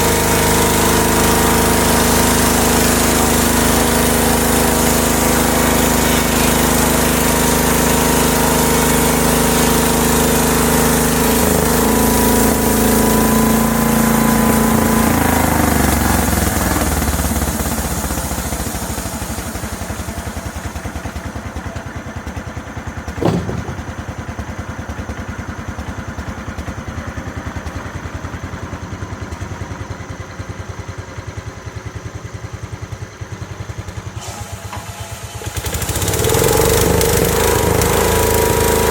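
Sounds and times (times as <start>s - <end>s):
sawmill engine running: 0.0s - 25.0s
sharp knock: 23.2s - 24.4s.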